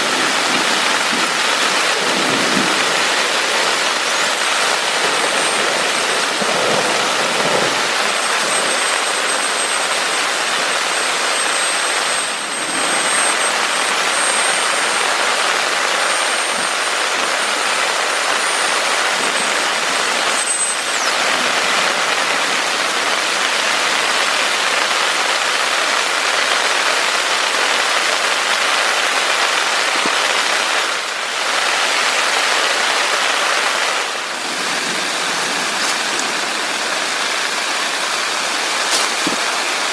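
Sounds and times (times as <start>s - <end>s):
faint high whine: 0.0s - 24.4s
heavy rain: 0.0s - 39.9s.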